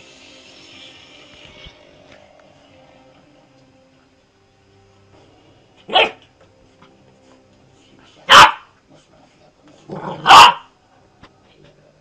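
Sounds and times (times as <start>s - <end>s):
dog barking: 5.9s - 6.2s, 8.2s - 8.8s, 10.0s - 10.7s.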